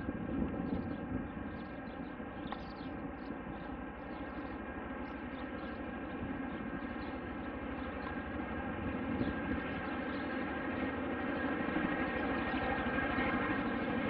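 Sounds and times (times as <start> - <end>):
aircraft engines droning: 0.0 - 14.0.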